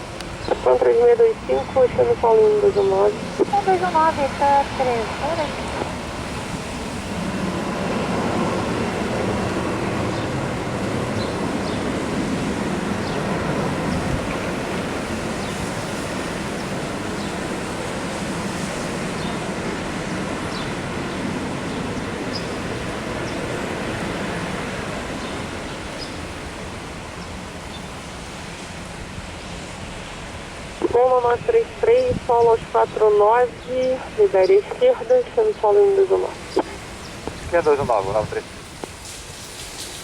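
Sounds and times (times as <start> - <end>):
jet engine roar: 0.0 - 29.3.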